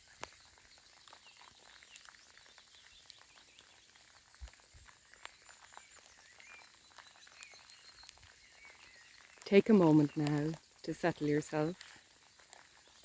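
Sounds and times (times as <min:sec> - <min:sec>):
raindrop patter: 0:00.0 - 0:13.0
faint bird chirps: 0:05.0 - 0:13.0.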